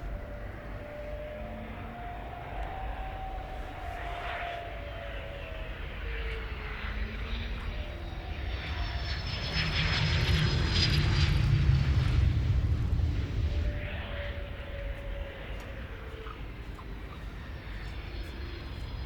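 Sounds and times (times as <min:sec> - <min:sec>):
falling jet whine: 0:00.0 - 0:19.0
jet engines flying past: 0:00.0 - 0:19.0.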